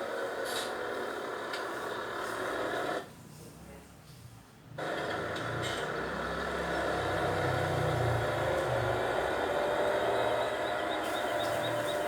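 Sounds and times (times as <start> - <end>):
large engine low rumble: 4.8 - 12.0.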